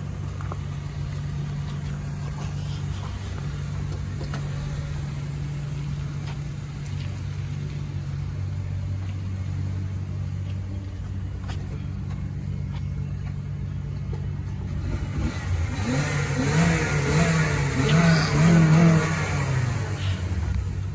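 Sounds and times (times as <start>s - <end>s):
car engine idling and revving: 0.0s - 20.9s.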